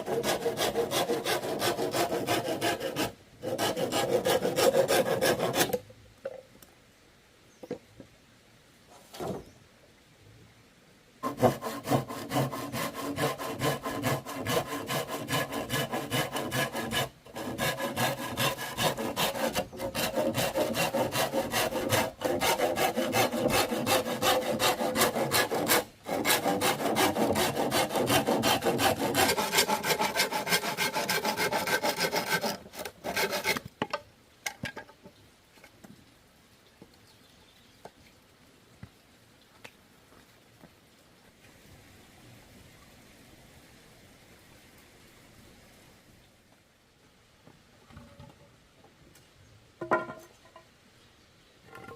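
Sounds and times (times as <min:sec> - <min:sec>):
saw cutting through bamboo: 0:00.0 - 0:05.8, 0:11.2 - 0:33.7.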